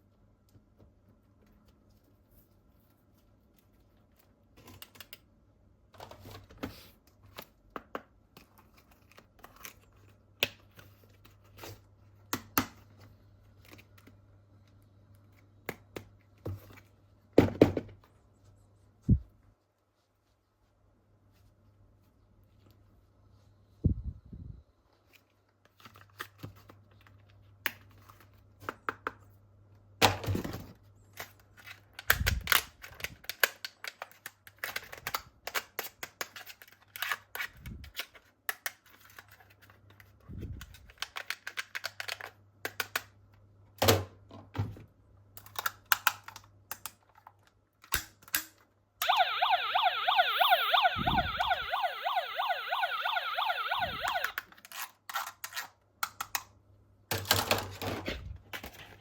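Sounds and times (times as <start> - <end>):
toy electronic siren warble: 49.0 - 54.4.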